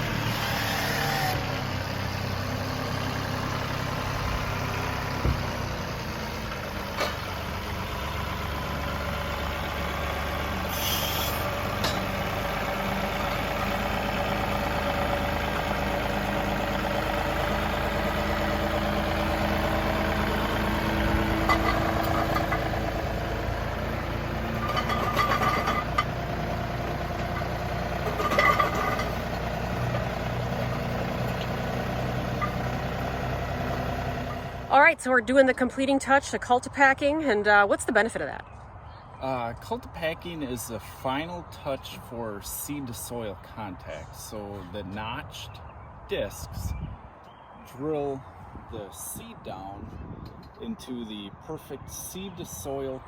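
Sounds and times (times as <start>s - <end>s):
tractor diesel engine running: 0.0s - 37.7s.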